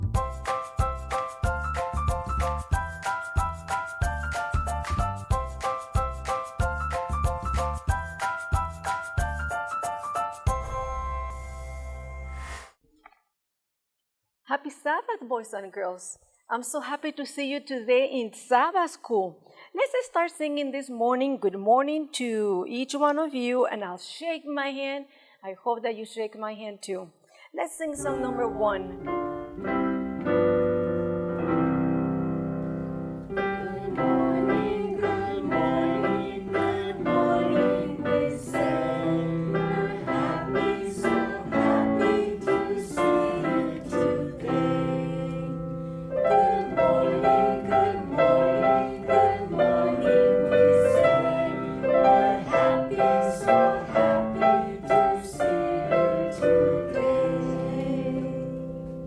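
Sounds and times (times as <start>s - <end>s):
children's song on piano: 0.0s - 11.6s, 28.0s - 59.0s.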